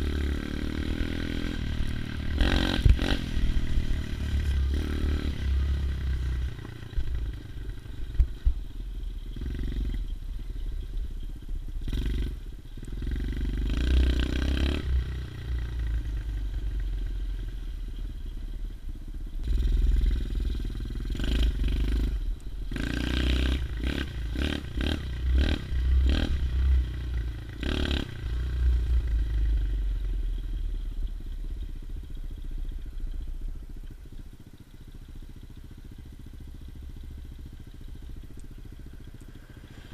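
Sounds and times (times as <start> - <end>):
motorbike engine revving: 0.0 - 8.2, 11.8 - 17.0, 19.4 - 30.0.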